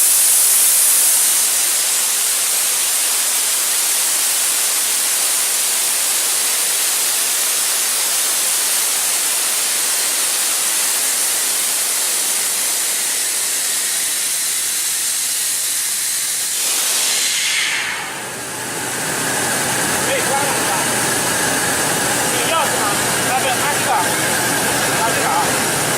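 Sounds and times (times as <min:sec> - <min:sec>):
compressed air hissing: 0:00.0 - 0:02.8, 0:11.0 - 0:25.9
air compressor humming: 0:00.0 - 0:25.9.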